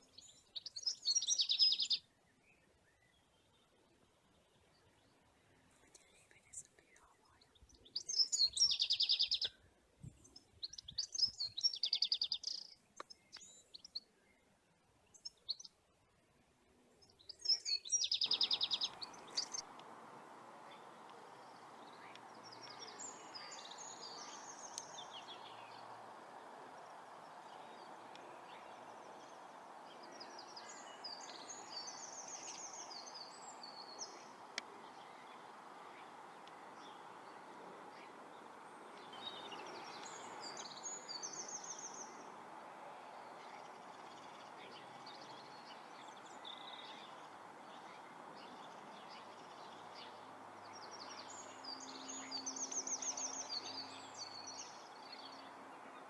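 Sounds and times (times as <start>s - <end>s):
faint bird twittering: 0.0s - 14.5s, 16.9s - 56.0s
birds chirping: 0.0s - 15.8s, 16.9s - 56.0s
steady background noise: 18.3s - 56.0s.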